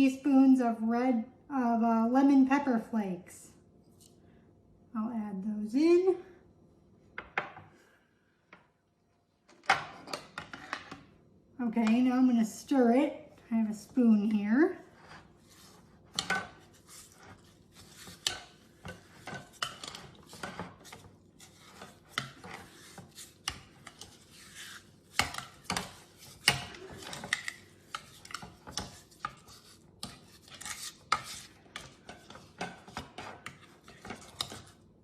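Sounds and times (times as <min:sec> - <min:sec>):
spoon scraping in a bowl: 0:14.8 - 0:34.9.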